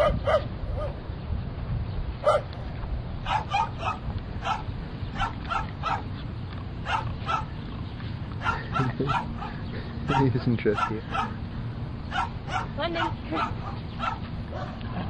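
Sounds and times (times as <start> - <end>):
dog barking: 0.0 - 1.0, 2.2 - 2.5, 3.2 - 6.1, 6.8 - 7.5, 8.4 - 11.4, 12.1 - 15.0.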